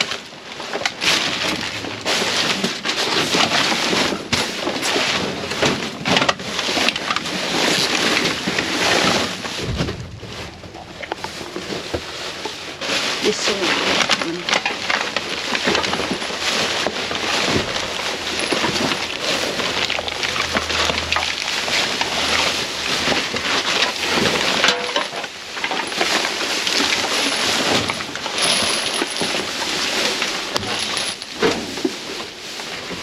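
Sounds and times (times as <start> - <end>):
packaging rustling and crinkling: 0.0 - 33.0
small knocks and clinks: 26.9 - 29.5, 30.6 - 31.6.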